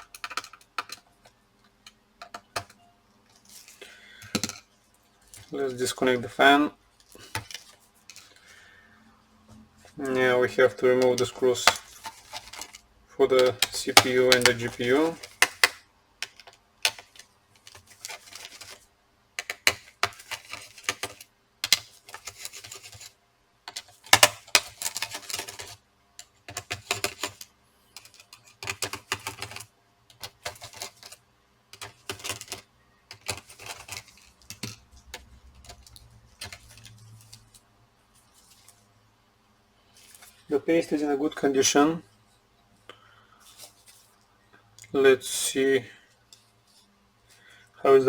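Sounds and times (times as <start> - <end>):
small metal parts rattling: 10.8 - 18.8, 23.7 - 37.6.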